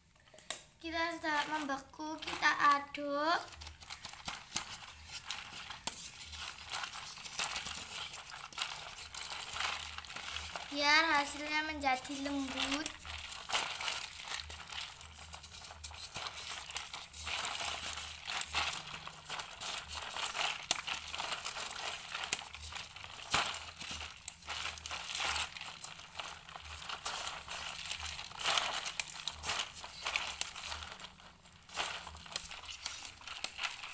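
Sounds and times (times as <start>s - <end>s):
spoon scraping ice in a tin can: 3.4s - 33.9s.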